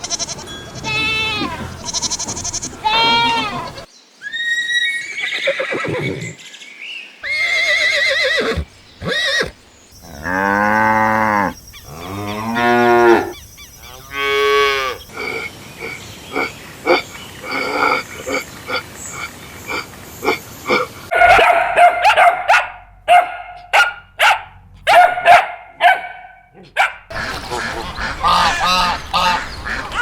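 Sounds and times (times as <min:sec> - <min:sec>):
cattle mooing: 0:10.1 - 0:15.0.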